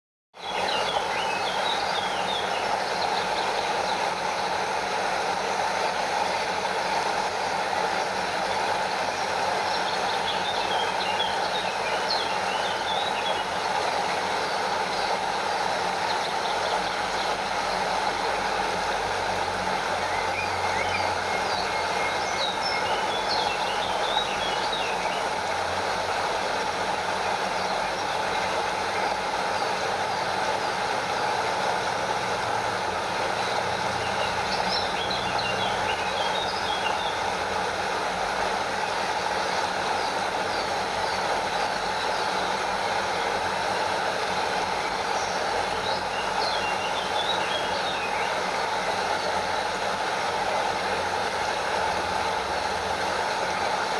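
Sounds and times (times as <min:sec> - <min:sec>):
stream cascading over waterfall: 0:00.5 - 0:53.9.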